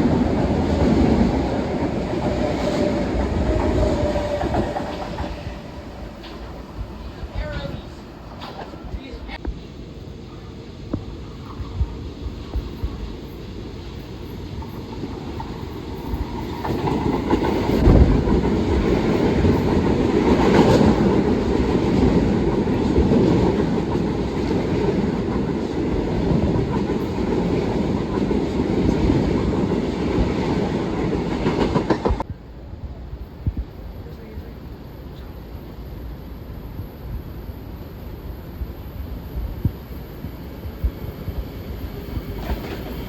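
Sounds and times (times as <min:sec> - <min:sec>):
train passing: 0:00.0 - 0:43.0.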